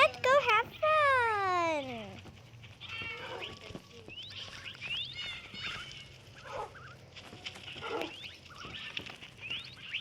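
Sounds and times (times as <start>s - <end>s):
lower squeaky animal calls: 2.6s - 10.0s.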